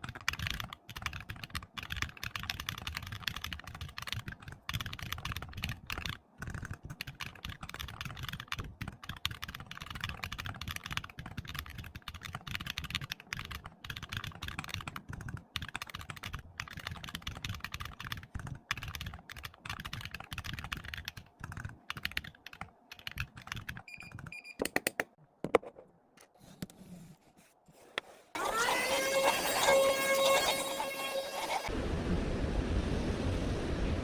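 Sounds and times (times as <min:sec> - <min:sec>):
fast typing on keyboard: 0:00.0 - 0:24.4.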